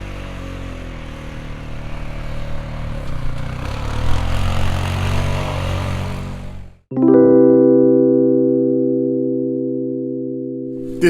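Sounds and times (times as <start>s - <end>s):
vehicle engine running: 0.0s - 6.8s.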